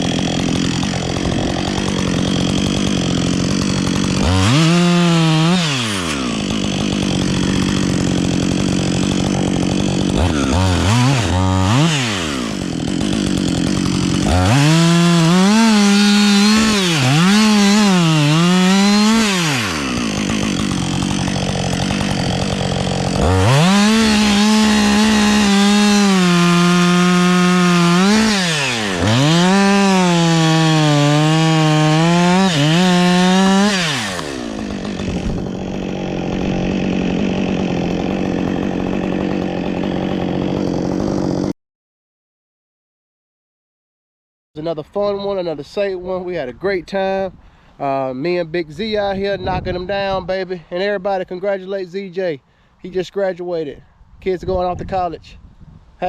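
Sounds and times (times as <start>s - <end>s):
chainsaw cutting wood: 0.0s - 41.6s.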